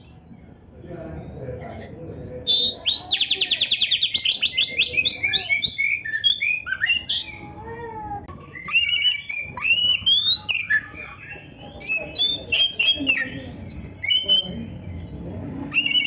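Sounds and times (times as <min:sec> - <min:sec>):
songbird singing varied song: 0:00.0 - 0:07.5, 0:08.4 - 0:16.0.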